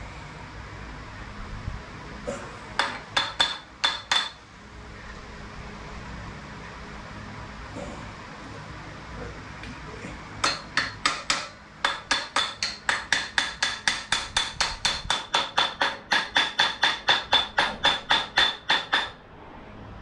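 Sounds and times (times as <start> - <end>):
small hammer tapping on metal: 2.8 - 4.4, 10.4 - 19.2.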